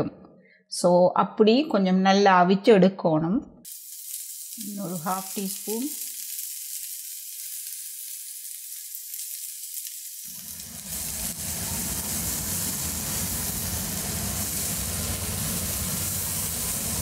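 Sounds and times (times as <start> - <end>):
onions sizzling in oil: 3.7 - 17.0.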